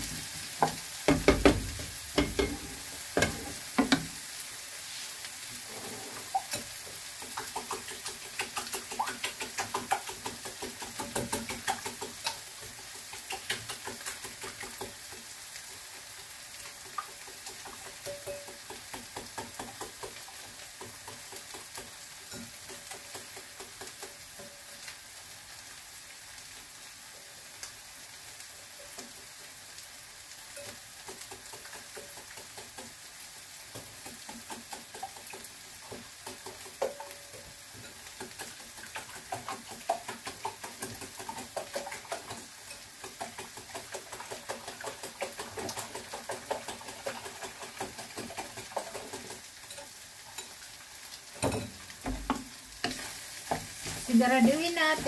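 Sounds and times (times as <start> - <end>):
potatoes sizzling in oil: 0.0 - 55.0
stirring clicks against pan: 6.3 - 15.9, 16.6 - 24.6, 30.6 - 33.0, 33.7 - 50.6.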